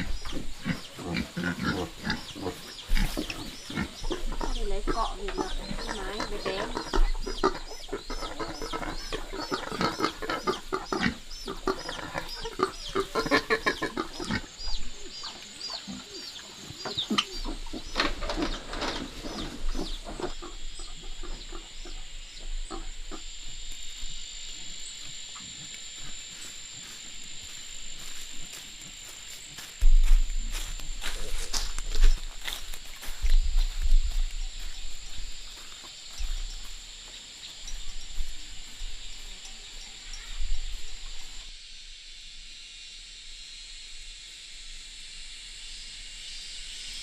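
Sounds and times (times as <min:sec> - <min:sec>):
chicks peeping: 0:00.0 - 0:23.2, 0:30.0 - 0:41.4
chickens clucking: 0:00.0 - 0:23.4, 0:30.0 - 0:41.4
steady high whine: 0:19.6 - 0:46.7.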